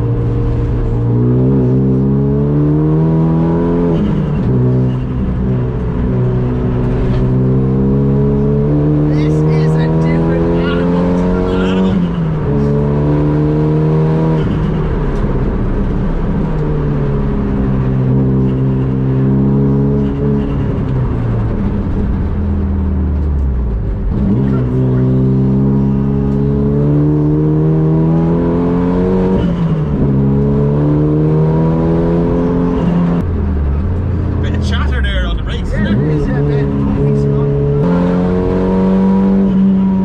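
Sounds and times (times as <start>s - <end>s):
car engine revving hard: 0.0s - 15.6s, 24.0s - 33.2s, 34.3s - 40.0s.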